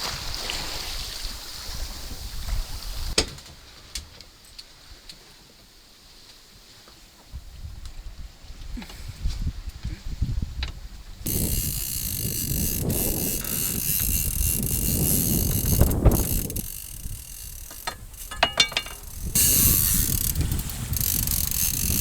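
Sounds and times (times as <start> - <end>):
wind: 0.0 - 22.0
ratchet clicking: 11.3 - 22.0
water noise: 11.3 - 22.0.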